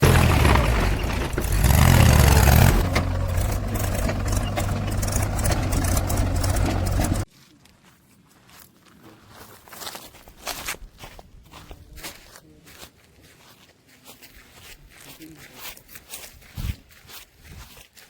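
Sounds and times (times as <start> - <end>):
heavy diesel engine running: 0.0 - 7.3.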